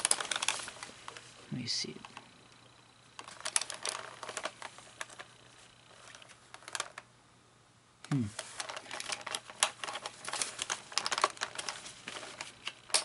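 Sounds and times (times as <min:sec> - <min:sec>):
plastic parts clicking and tapping: 0:00.0 - 0:01.2, 0:03.2 - 0:05.3, 0:06.0 - 0:07.1, 0:08.3 - 0:13.0.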